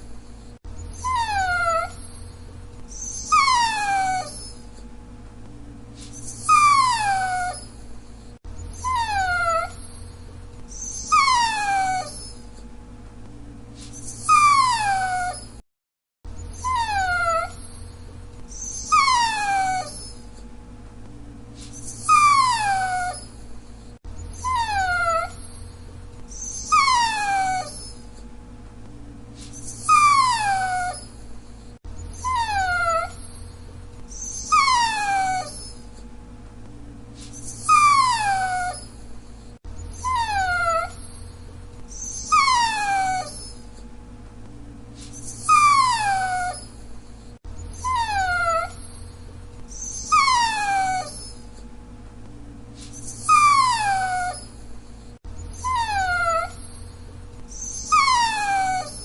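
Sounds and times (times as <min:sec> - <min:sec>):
dog whining: 0:00.0 - 0:04.9, 0:06.0 - 0:12.7, 0:13.8 - 0:15.6, 0:16.3 - 0:20.5, 0:21.6 - 0:28.3, 0:29.4 - 0:36.1, 0:37.2 - 0:43.9, 0:45.0 - 0:51.7, 0:52.8 - 0:59.0
faint steady hum: 0:00.0 - 0:15.6, 0:16.3 - 0:59.0.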